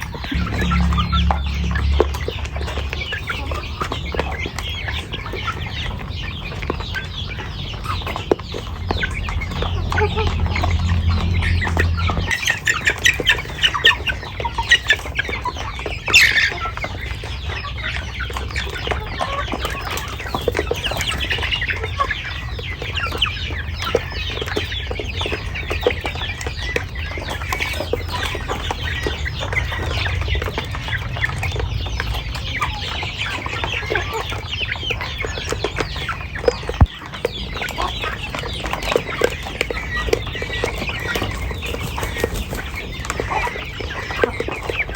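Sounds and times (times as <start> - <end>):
loud sharp sound: 0.3 - 3.7
low steady rumble: 0.3 - 4.6, 7.7 - 13.7
hens clucking: 31.9 - 44.9.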